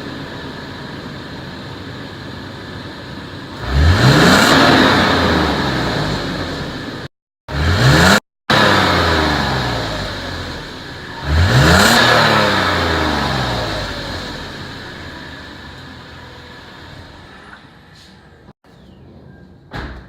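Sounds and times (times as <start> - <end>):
engine idling and revving: 0.0 - 17.9.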